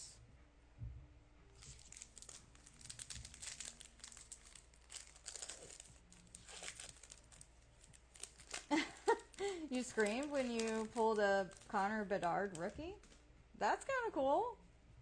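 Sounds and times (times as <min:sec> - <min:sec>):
foil wrapper crinkling: 0:01.6 - 0:13.2.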